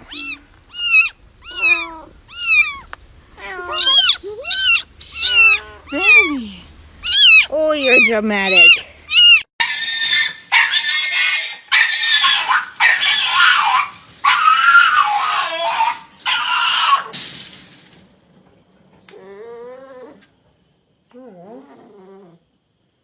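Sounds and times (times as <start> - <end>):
dog crying loudly: 0.0 - 6.4, 7.0 - 17.2.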